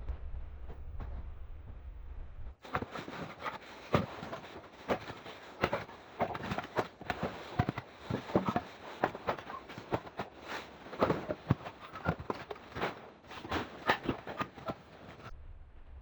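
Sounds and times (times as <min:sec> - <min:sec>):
irregular knocks and clicks: 0:02.6 - 0:15.3.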